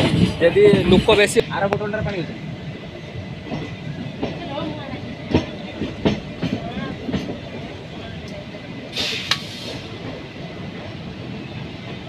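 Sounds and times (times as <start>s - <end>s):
train wheels rumbling on rails: 0.0s - 12.0s
wheels clacking over rail joints: 3.0s - 12.0s
short hissing rush: 8.9s - 10.0s.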